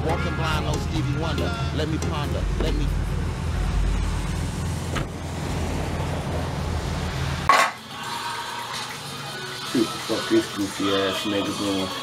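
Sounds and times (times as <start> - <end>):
car engine idling: 0.4 - 7.5.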